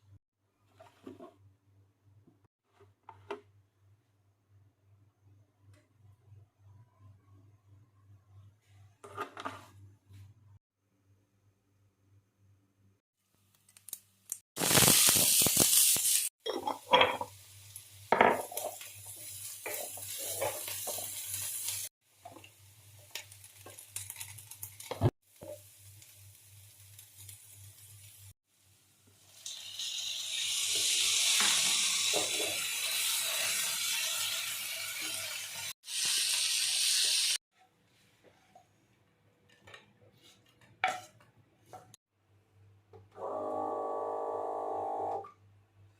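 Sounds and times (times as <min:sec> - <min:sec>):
food sizzling in a hot pan: 0:14.6 - 0:37.4
utensils clinking against pots: 0:16.4 - 0:17.3.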